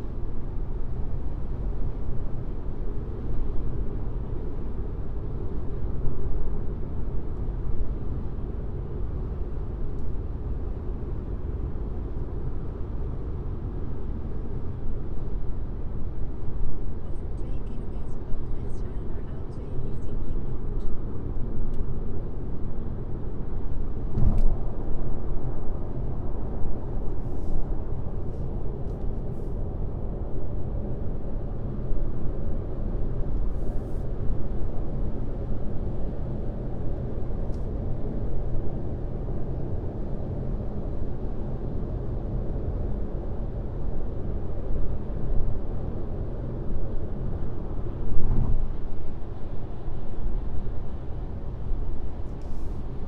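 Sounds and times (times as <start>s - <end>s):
road and tyre rumble: 0.0s - 53.0s
engine hum: 17.0s - 53.0s
short knock: 24.1s - 24.6s.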